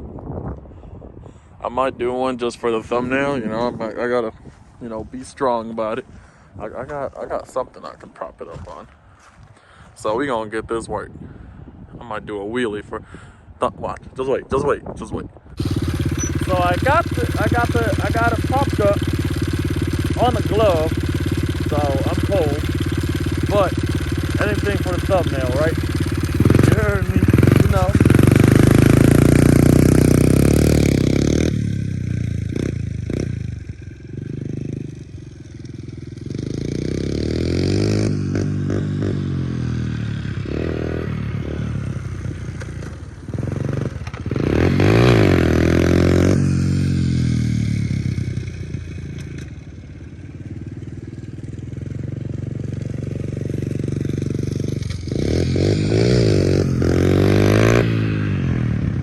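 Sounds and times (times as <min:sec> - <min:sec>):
pit bike engine revving: 0:15.6 - 0:59.0.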